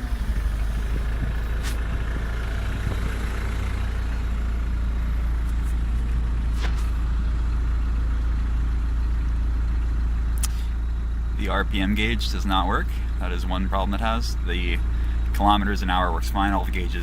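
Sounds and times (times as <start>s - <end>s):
diesel engine idling: 0.0s - 17.0s
brief clicks: 10.4s - 10.6s.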